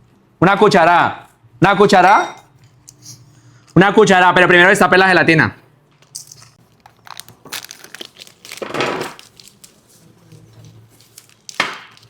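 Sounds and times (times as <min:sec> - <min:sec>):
packaging crinkling: 0:06.6 - 0:12.0.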